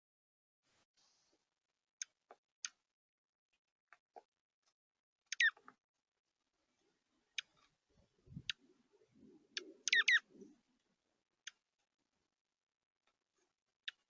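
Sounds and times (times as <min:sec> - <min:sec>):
small birds chip calls: 0:05.3 - 0:05.7, 0:07.3 - 0:10.7.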